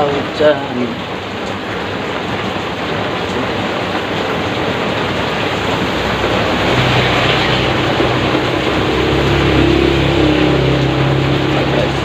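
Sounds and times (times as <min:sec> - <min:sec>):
heavy rain pouring: 0:00.0 - 0:12.0
vehicle engine hum: 0:03.1 - 0:12.0.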